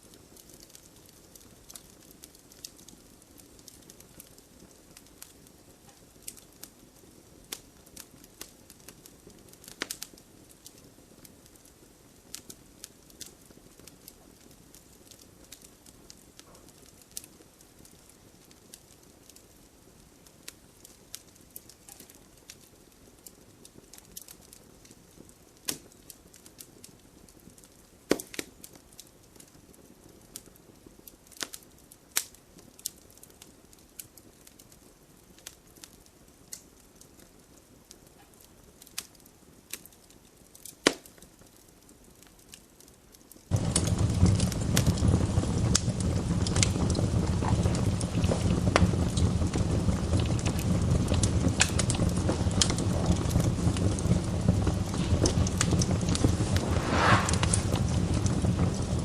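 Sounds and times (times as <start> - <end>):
wood fire crackling: 0.0 - 59.0
loud steady rushing noise: 56.2 - 58.7.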